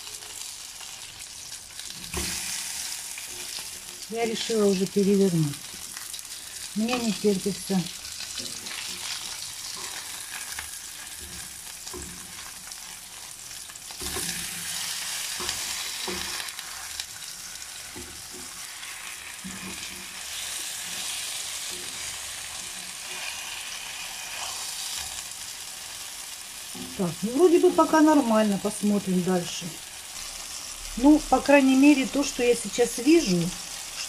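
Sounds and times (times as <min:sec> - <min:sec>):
chops sizzling in hot oil: 0:00.0 - 0:34.0
spatula scraping and knocking pan: 0:13.9 - 0:17.0, 0:19.4 - 0:23.3.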